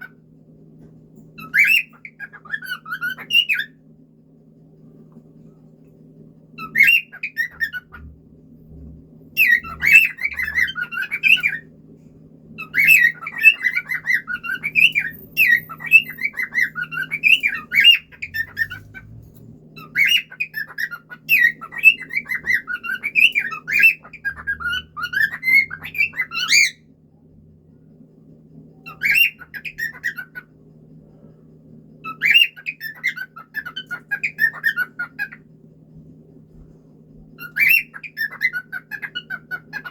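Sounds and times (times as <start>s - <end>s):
faint steady hum: 0.0s - 39.9s
cockatiel whistling and chirping: 1.4s - 3.8s, 6.6s - 8.1s, 9.4s - 11.6s, 12.6s - 26.8s, 28.9s - 30.5s, 32.0s - 35.4s, 37.4s - 39.9s.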